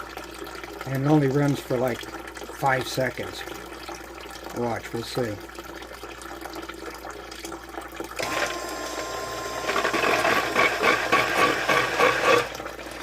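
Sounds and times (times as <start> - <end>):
water churning through pump: 0.0 - 7.2, 8.0 - 13.0
pump motor whining: 8.2 - 13.0.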